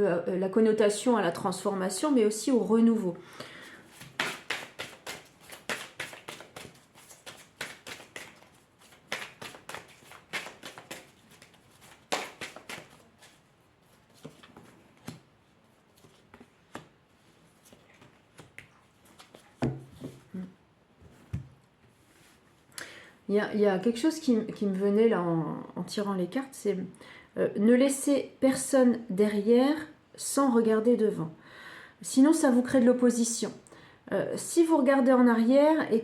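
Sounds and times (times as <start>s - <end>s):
cards being shuffled: 3.9s - 15.3s, 17.6s - 20.2s.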